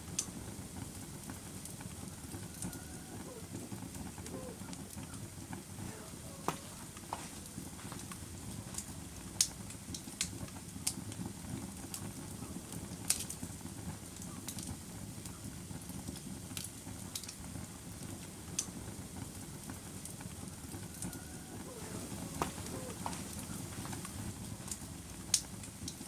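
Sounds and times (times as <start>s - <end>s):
fire pops and crackles: 0.0s - 26.0s
fire rumbling: 0.0s - 26.0s.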